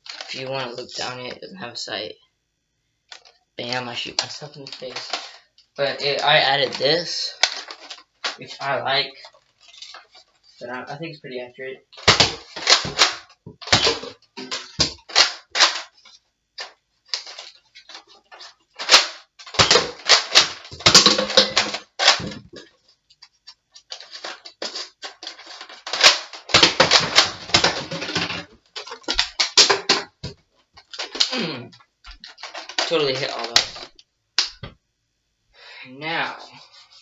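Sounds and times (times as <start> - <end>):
darts hitting targets: 12.0 - 15.8, 18.9 - 22.6, 26.0 - 28.5
toy blaster pumping and firing: 12.0 - 16.0, 18.8 - 22.4, 24.0 - 28.2.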